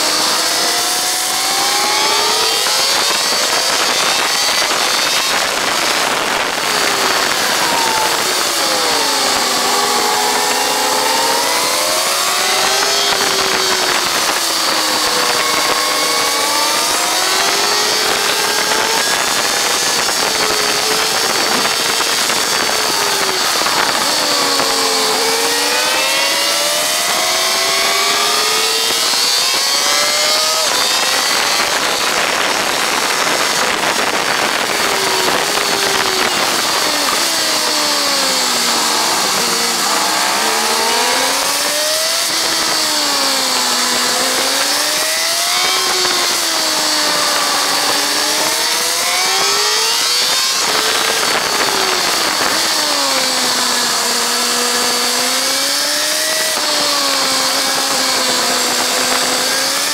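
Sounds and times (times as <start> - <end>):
heavy wind rush: 0.0 - 59.9
motorcycle engine revving: 0.0 - 59.9.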